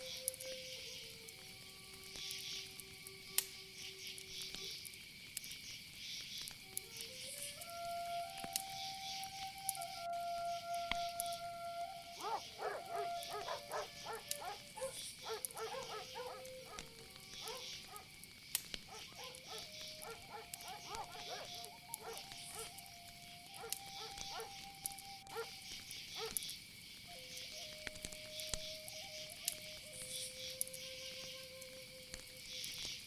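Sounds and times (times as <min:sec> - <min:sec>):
crickets chirring: 0:00.0 - 0:33.0.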